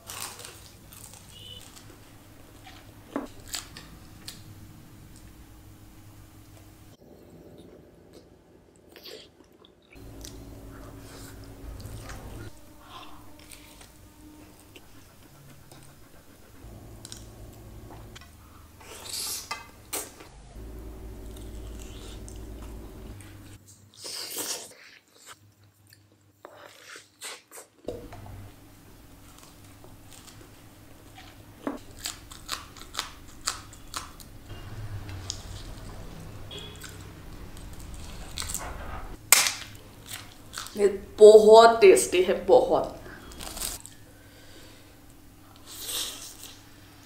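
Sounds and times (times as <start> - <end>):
person chewing and crunching: 0.0 - 2.0, 21.1 - 22.9, 29.2 - 34.3, 35.0 - 38.6, 39.4 - 40.8
low steady hum: 0.1 - 23.6.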